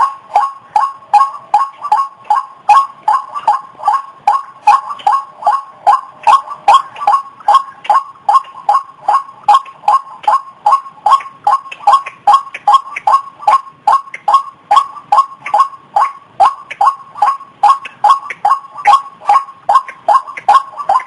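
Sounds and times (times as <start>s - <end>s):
waterhen calling harsh notes: 0.0s - 21.0s.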